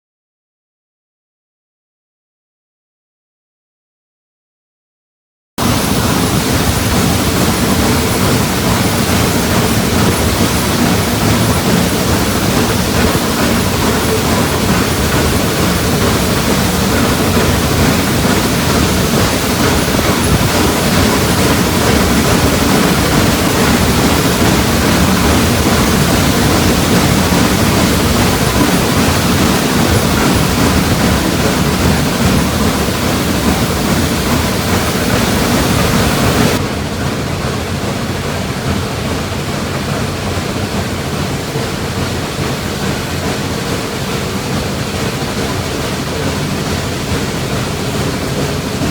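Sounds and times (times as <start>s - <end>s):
moving train rushing: 5.6s - 48.9s.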